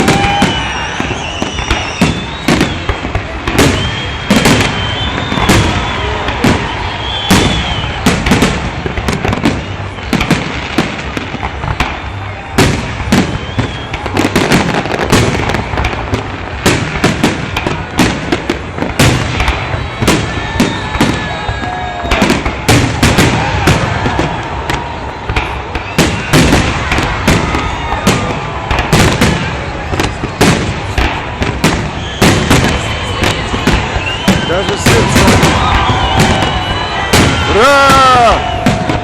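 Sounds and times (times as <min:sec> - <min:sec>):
firework bangs and crackles: 0:00.0 - 0:39.0.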